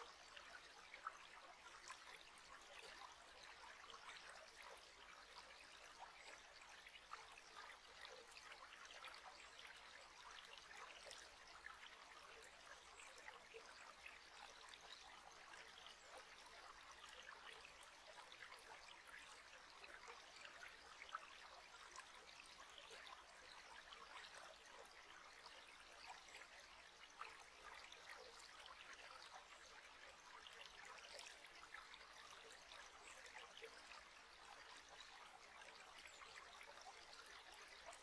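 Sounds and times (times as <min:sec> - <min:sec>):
faint trickling water: 0:00.0 - 0:38.0.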